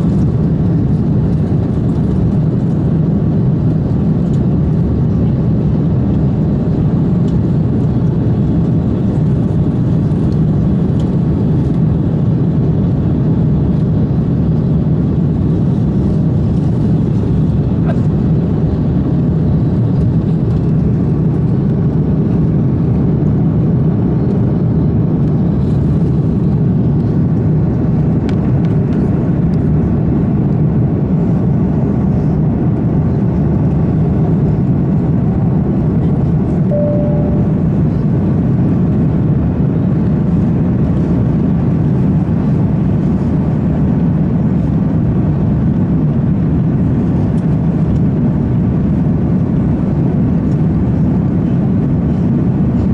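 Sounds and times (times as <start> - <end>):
airliner cabin engine noise: 0.0 - 52.9
single tone: 36.7 - 38.2.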